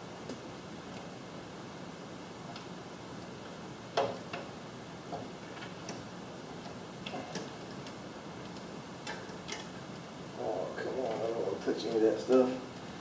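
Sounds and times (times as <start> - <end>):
faint steady hiss: 0.0 - 13.0
small parts clicking and tapping: 5.1 - 9.8.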